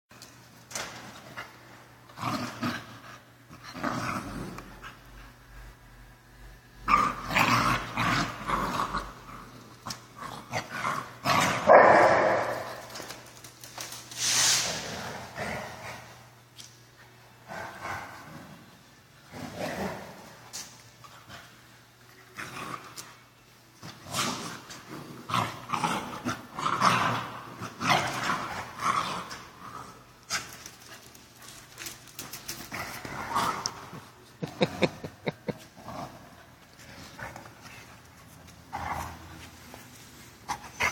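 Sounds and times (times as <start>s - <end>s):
dogs growling: 6.8s - 13.0s, 23.8s - 30.6s, 32.6s - 37.9s.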